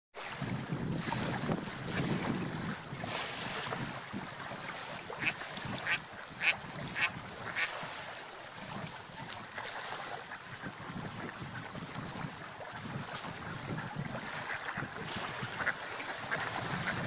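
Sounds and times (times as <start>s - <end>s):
duck quacking: 5.2s - 7.7s.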